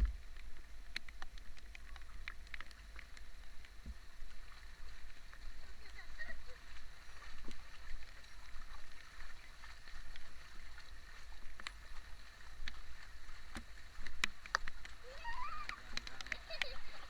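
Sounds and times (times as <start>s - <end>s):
sharp drip-like clicks: 0.0s - 17.0s
heavy rain: 4.0s - 17.0s.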